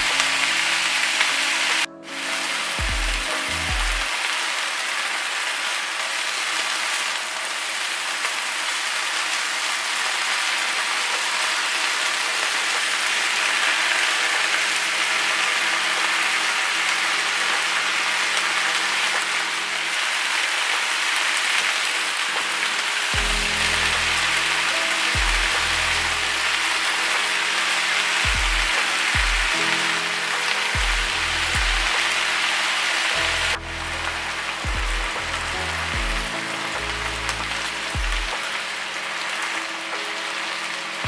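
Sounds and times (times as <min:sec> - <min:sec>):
food sizzling in a frying pan: 0:03.4 - 0:34.6.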